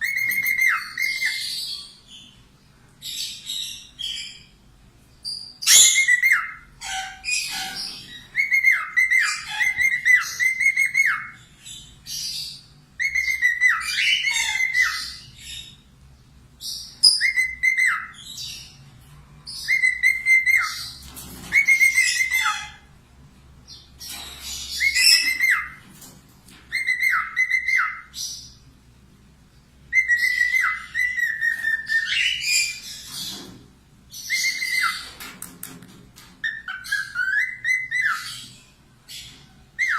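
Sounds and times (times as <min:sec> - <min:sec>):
bird whistling and chattering: 0:00.0 - 0:01.8, 0:05.3 - 0:11.4, 0:12.2 - 0:15.7, 0:16.7 - 0:18.7, 0:19.6 - 0:22.8, 0:24.4 - 0:25.8, 0:26.7 - 0:28.5, 0:29.9 - 0:33.3, 0:34.1 - 0:35.2, 0:36.4 - 0:38.5.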